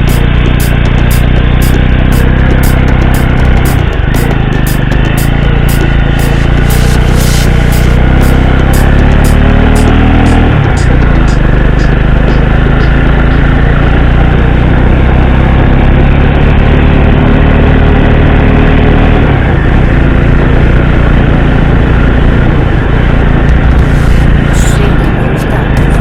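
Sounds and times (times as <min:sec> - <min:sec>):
motorcycle engine running: 0:00.0 - 0:26.0
road noise: 0:00.0 - 0:26.0
wind rush: 0:21.9 - 0:26.0.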